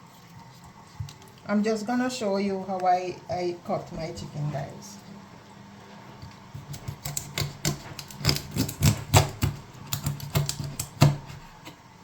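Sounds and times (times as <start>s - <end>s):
knife knocking through chicken joints: 6.6s - 11.7s.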